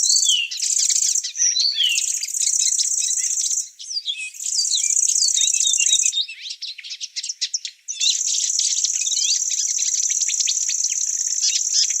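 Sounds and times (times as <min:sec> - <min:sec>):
insect trill: 0:00.0 - 0:03.7, 0:04.4 - 0:06.1, 0:08.0 - 0:12.0
birds chirping and singing: 0:00.0 - 0:12.0.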